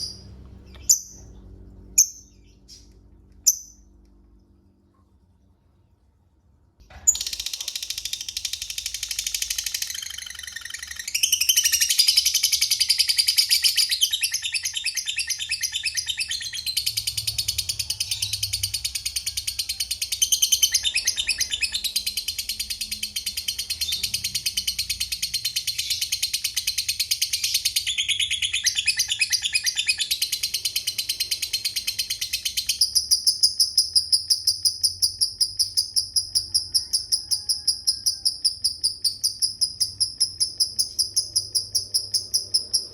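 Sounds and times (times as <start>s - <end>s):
lovebird chattering in shrill trills: 7.1s - 42.9s.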